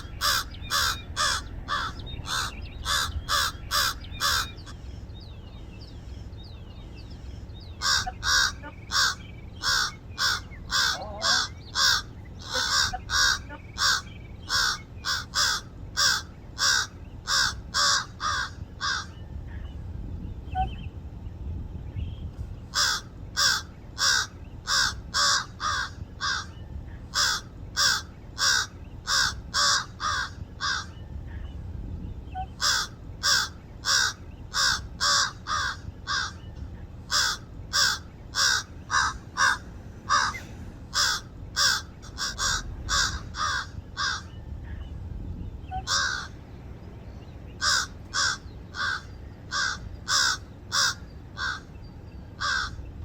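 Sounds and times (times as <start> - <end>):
crows cawing: 0.0 - 4.8, 7.8 - 19.2, 22.7 - 30.9, 32.6 - 36.4, 37.1 - 44.3, 45.8 - 46.4, 47.6 - 51.7, 52.4 - 52.8.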